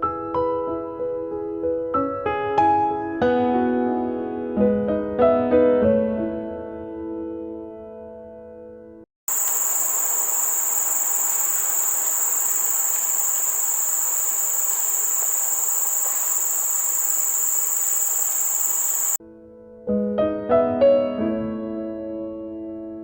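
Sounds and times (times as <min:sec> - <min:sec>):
background hiss: 0:09.3 - 0:19.2
high-pitched insect chorus: 0:09.3 - 0:19.2.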